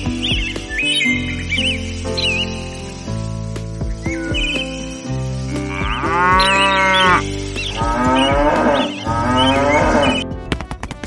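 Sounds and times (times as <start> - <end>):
quiet background music: 0.0 - 11.0
cow mooing: 5.7 - 10.2.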